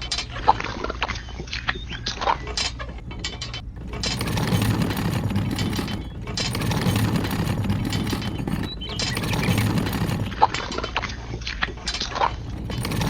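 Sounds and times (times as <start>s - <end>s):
small geared motor whirring: 3.7s - 10.8s, 12.3s - 13.0s.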